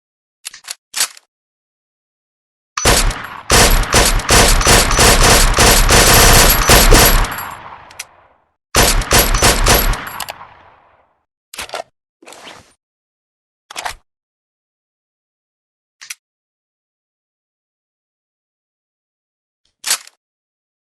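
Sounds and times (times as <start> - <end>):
suppressed rifle rapid fire: 2.8 - 8.0, 8.8 - 10.7.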